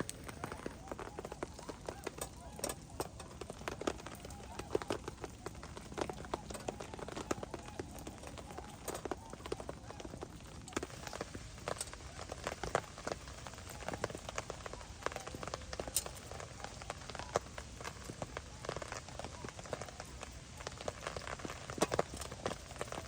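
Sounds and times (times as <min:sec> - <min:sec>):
rain falling: 0:00.0 - 0:23.0
sharp raindrop hits: 0:00.0 - 0:23.0.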